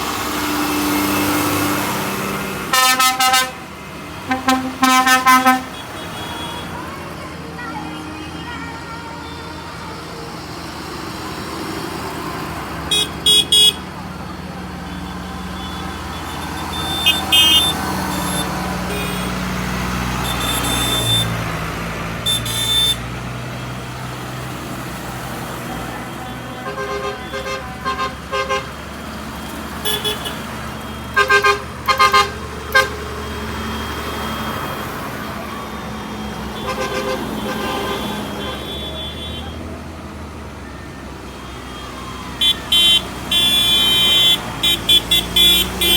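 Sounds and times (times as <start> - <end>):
tractor engines passing by: 0.0 - 45.9
short horn toots: 16.7 - 19.4.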